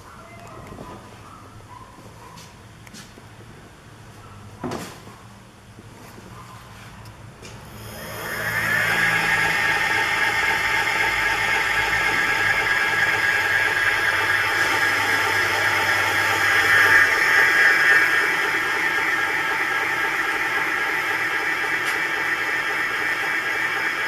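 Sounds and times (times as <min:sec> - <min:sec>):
electric motor whining: 0:07.6 - 0:24.0.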